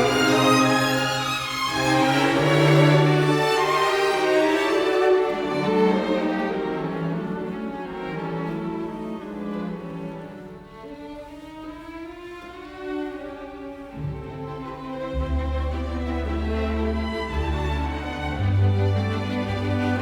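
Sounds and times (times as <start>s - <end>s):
bowed strings music: 0.0s - 20.0s.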